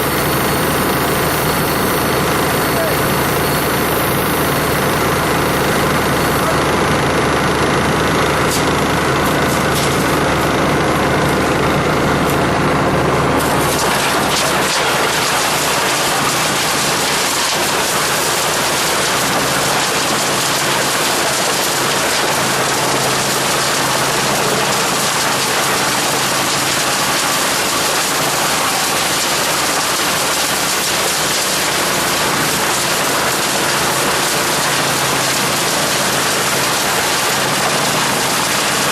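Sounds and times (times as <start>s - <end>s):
wood chipper engine running: 0.0s - 38.9s
loud dense rushing of chipping: 13.2s - 38.9s.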